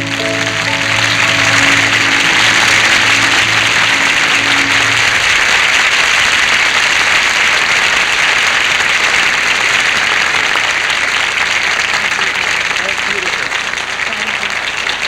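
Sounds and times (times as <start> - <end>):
orchestra held chord: 0.0 - 8.0
audience applauding: 0.0 - 15.0.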